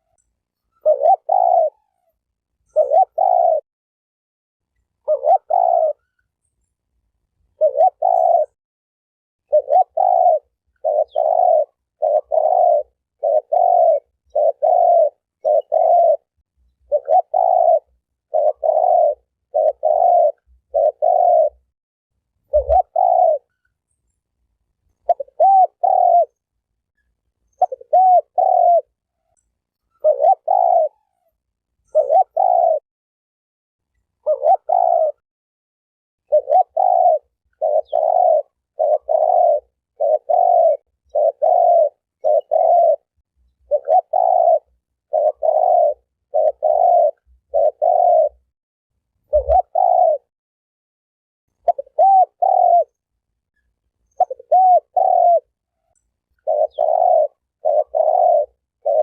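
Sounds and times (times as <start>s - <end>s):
dove cooing: 0.0s - 3.6s, 5.0s - 6.3s, 7.6s - 8.6s, 9.4s - 21.7s, 22.4s - 23.6s, 25.0s - 26.4s, 27.5s - 32.8s, 34.2s - 35.2s, 36.2s - 48.5s, 49.3s - 50.3s, 51.6s - 53.0s, 54.1s - 59.0s.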